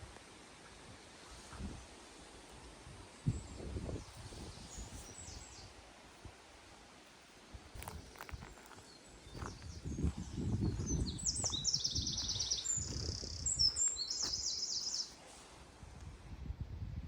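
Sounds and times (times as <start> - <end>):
songbird trilling: 10.7 - 15.2.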